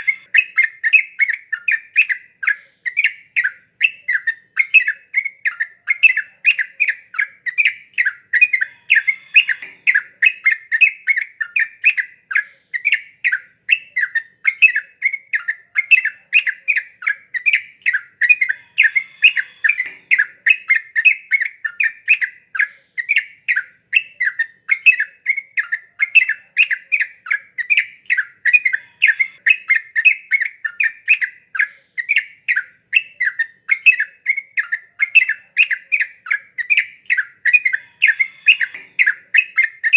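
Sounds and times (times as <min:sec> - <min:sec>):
bulbul singing chattering notes: 0:00.0 - 0:39.9.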